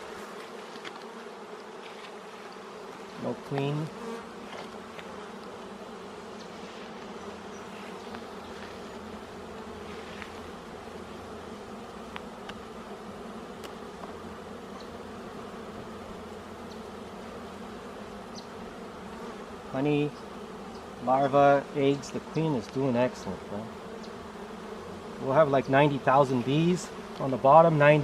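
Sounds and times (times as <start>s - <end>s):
honeybees buzzing: 0.0s - 28.0s.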